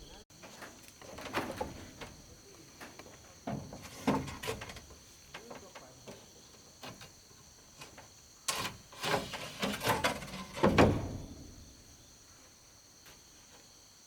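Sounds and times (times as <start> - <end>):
high insect drone: 0.0 - 14.0
knocks of bamboo being handled: 0.4 - 7.2.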